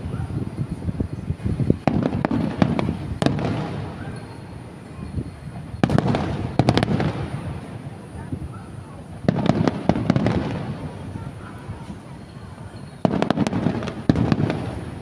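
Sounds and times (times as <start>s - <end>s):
fireworks bangs: 0.0s - 15.0s
rumbling crackle of fireworks: 0.0s - 15.0s.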